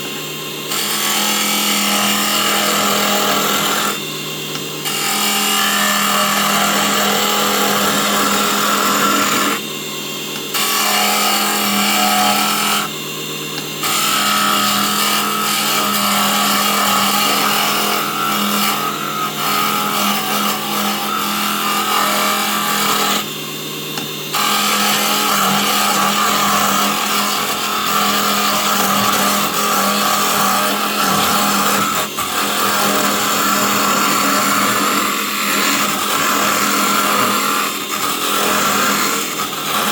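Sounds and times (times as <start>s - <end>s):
lathe motor hum: 0.0s - 39.9s.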